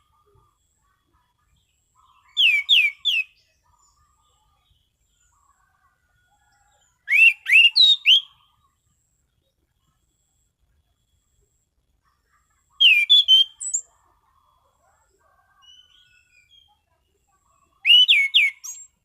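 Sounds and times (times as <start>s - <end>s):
bird whistled song: 2.1s - 3.6s, 7.0s - 8.6s, 12.8s - 13.9s, 15.6s - 16.8s, 17.8s - 19.0s.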